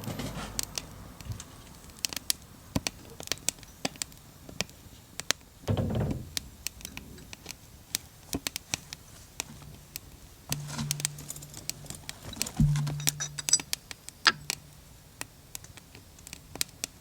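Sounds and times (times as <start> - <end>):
wood fire crackling and popping: 0.6 - 17.0
steady low hum: 9.6 - 15.2.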